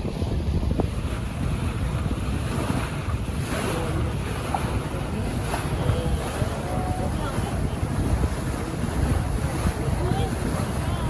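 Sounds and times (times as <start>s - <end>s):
wind buffeting microphone: 0.0s - 11.0s
water washing: 0.8s - 11.0s.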